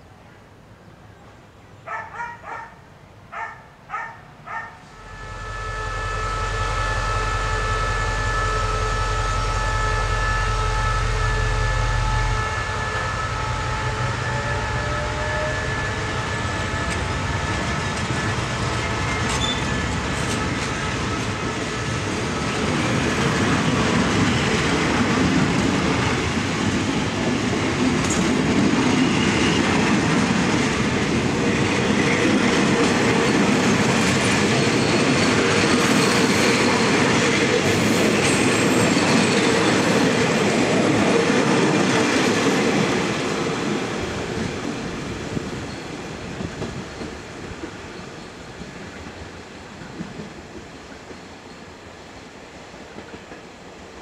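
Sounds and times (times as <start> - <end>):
diesel locomotive engine hum: 4.8 - 54.0
train wagons rumbling and clattering: 13.6 - 53.8.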